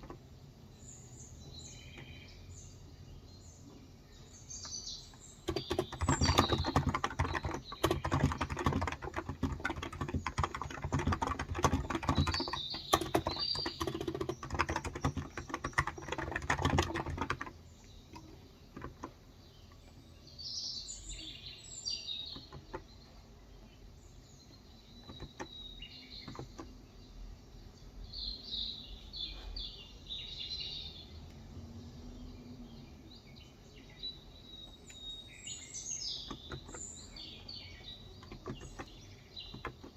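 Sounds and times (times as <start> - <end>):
small birds chirping: 0.0 - 39.9
fast keyboard typing: 5.4 - 19.2, 22.3 - 22.9, 25.0 - 26.7, 36.2 - 39.9.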